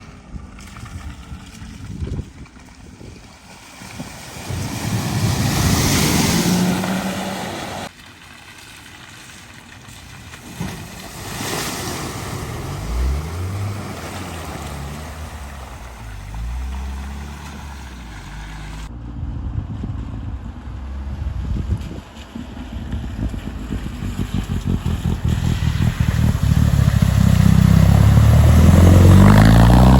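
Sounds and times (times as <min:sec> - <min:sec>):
cars splashing through water: 0:00.0 - 0:18.9, 0:20.0 - 0:29.9
car engine revving: 0:04.6 - 0:07.9, 0:11.9 - 0:29.9.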